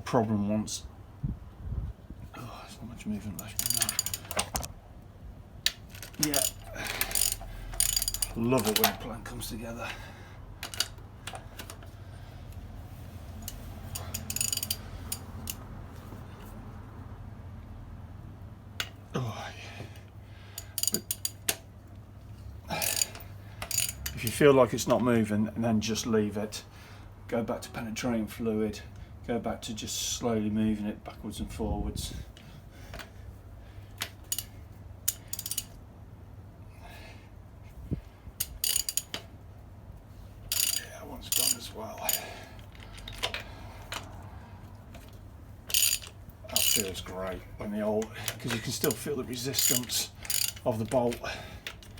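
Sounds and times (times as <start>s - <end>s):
metal clicks: 3.4s - 4.7s, 5.6s - 9.1s, 10.6s - 11.9s, 13.4s - 15.6s, 20.6s - 21.7s, 22.8s - 25.0s, 34.0s - 35.8s, 38.4s - 39.3s, 40.5s - 47.4s, 48.0s - 51.9s
ratchet clicks: 3.4s - 4.7s, 5.7s - 9.0s, 10.6s - 11.9s, 13.4s - 15.7s, 20.6s - 21.7s, 22.7s - 24.4s, 34.0s - 35.8s, 38.4s - 39.3s, 40.5s - 44.2s, 45.0s - 47.1s, 48.0s - 51.9s.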